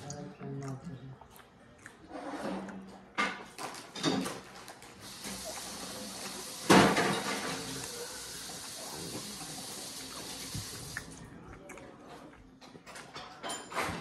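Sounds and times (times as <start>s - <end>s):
tap running: 5.0s - 11.1s.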